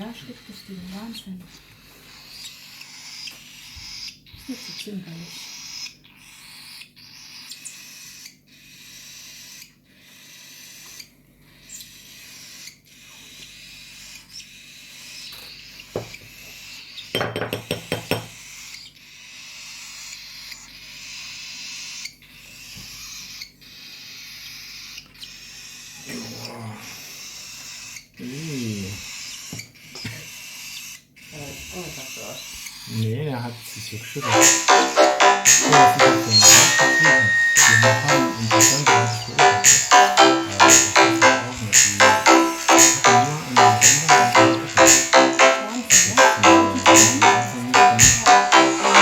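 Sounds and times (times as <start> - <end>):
rapid cheeps: 34.2 - 49.0.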